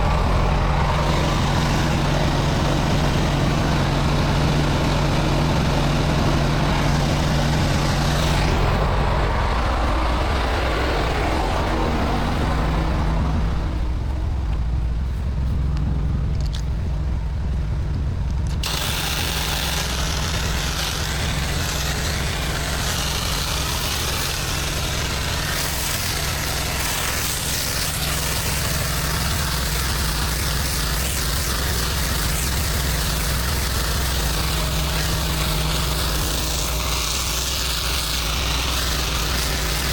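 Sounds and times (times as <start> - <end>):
engine running steadily: 0.0 - 39.9
water spray hissing: 18.6 - 39.9.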